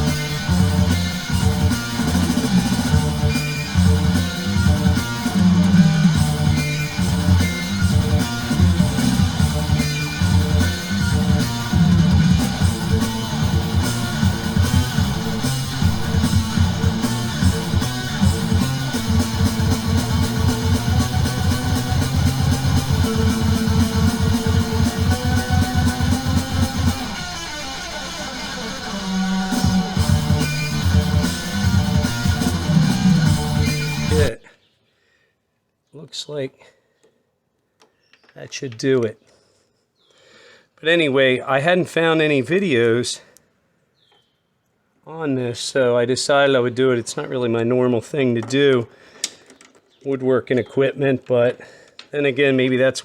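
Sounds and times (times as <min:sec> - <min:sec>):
guitar-driven rock music: 0:00.0 - 0:34.4.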